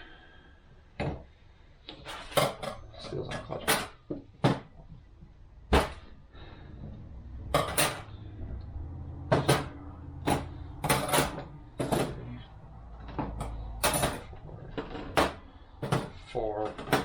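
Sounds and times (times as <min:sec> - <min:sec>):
low steady hum: 0:00.0 - 0:17.0
metal plates clinking: 0:07.4 - 0:08.4, 0:09.2 - 0:17.0.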